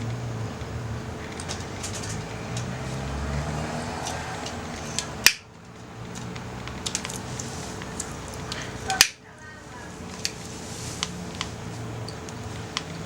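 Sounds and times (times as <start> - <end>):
wood fire crackling: 0.0 - 13.0
loud sharp snap: 5.0 - 5.5, 9.0 - 9.2.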